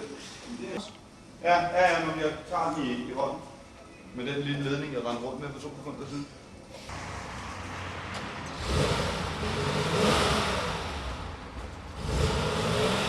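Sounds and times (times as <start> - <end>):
car engine revving: 6.9 - 13.0.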